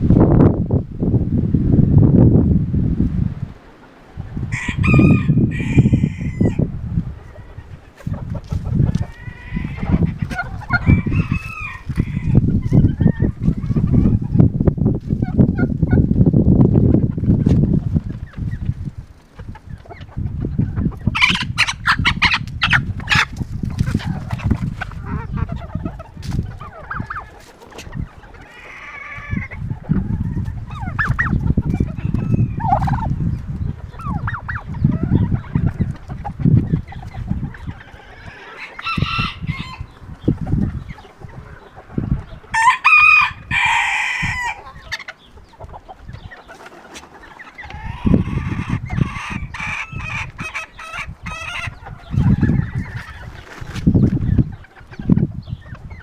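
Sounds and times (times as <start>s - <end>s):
wind buffeting microphone: 0.0s - 56.0s
chickens clucking: 1.9s - 56.0s
rooster crowing: 4.5s - 6.6s, 10.7s - 12.4s, 37.9s - 40.0s, 42.5s - 44.6s.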